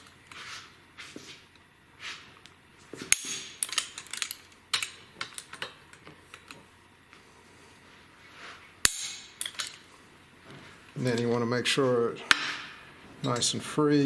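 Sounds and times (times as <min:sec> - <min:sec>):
wrench clicking on metal: 0:03.1 - 0:06.6.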